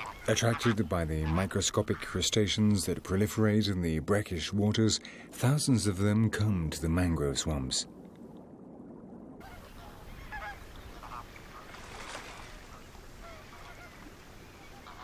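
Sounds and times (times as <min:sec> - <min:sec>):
flamingos honking: 0:00.0 - 0:03.4, 0:09.4 - 0:15.0.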